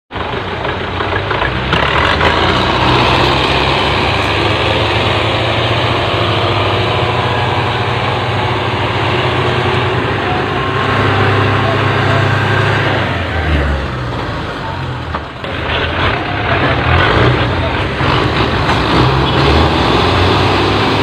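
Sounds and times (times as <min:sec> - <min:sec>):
tractor diesel engine running: 0:00.1 - 0:21.0.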